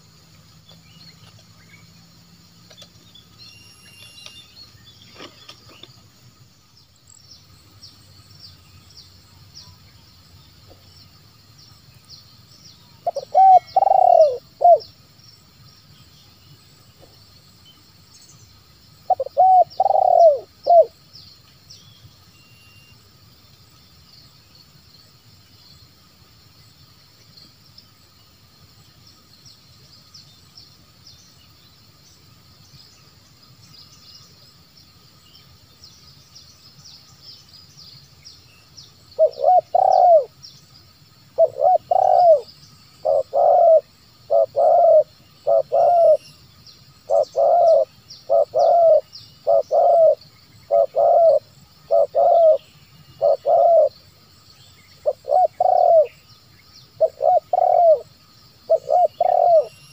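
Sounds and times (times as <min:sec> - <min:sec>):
faint high-pitched chirping: 0:00.0 - 0:59.9
dove cooing: 0:13.0 - 0:14.8, 0:19.1 - 0:20.9, 0:39.2 - 0:40.3, 0:41.4 - 0:46.2, 0:47.1 - 0:52.6, 0:53.2 - 0:53.9, 0:55.0 - 0:56.1, 0:57.0 - 0:58.1, 0:58.7 - 0:59.7.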